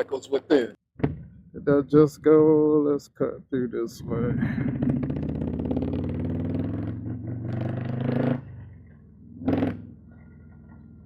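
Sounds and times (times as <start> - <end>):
motorcycle engine under throttle: 4.2 - 11.0.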